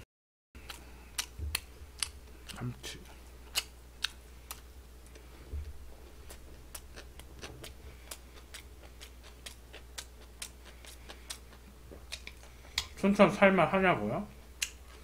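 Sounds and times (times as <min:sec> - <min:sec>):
low steady hum: 0:00.6 - 0:15.0
wet mouth clicks chewing: 0:06.3 - 0:13.0.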